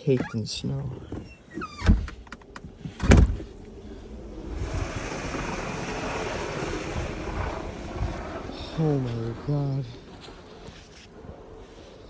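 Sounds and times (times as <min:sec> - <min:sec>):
blizzard wind rushing: 0:02.4 - 0:12.0
loud thump: 0:03.0 - 0:03.5.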